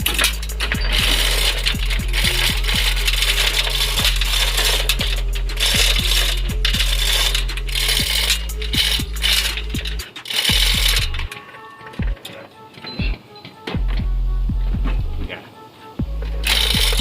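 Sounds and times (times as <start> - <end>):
steady low hum: 0.0 - 11.3, 13.8 - 15.3, 16.0 - 17.0
metallic ratchet clicking: 0.0 - 12.9, 16.4 - 17.0.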